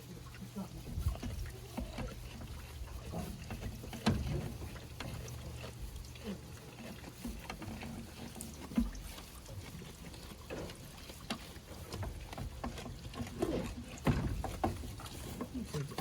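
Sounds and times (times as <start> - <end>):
small clicks and rustles: 0.0 - 16.0
wind rumbling on microphone: 0.8 - 4.6.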